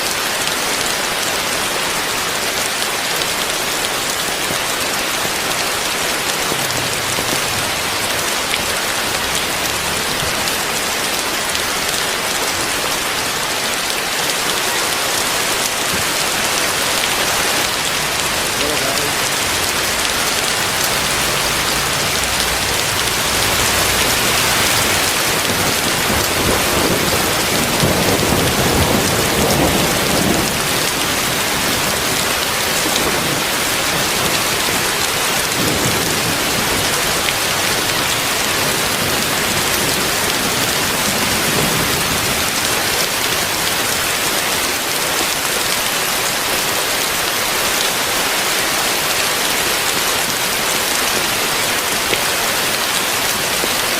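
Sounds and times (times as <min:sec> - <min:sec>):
heavy rain falling: 0:14.5 - 0:31.6
low rumble: 0:16.7 - 0:25.6.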